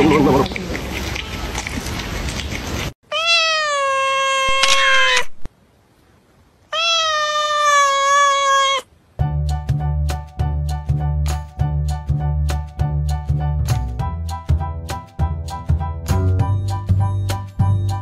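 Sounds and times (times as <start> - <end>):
background noise: 0.0 - 9.2
cat meowing: 3.0 - 5.4, 6.7 - 8.9
music: 9.2 - 18.0.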